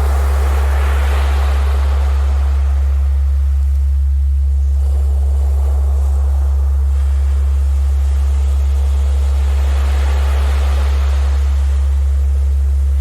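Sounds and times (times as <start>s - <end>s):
steady low tone: 11.2s - 13.0s.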